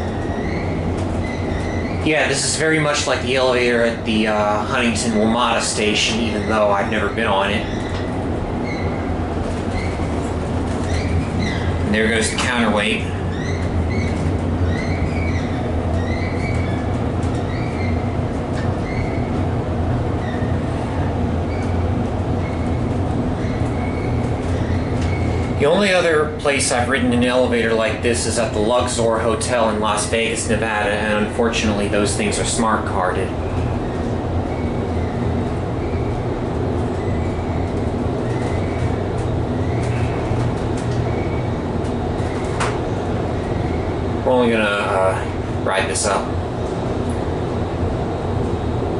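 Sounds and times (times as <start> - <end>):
short high squeaks: 0.0 - 2.1, 7.6 - 10.1
elevator car humming: 0.0 - 48.9.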